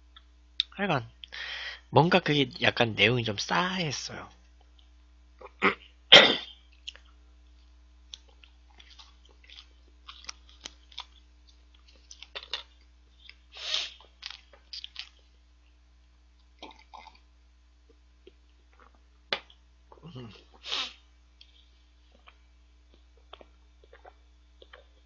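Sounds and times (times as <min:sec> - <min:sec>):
person chewing quietly: 0:06.6 - 0:25.0.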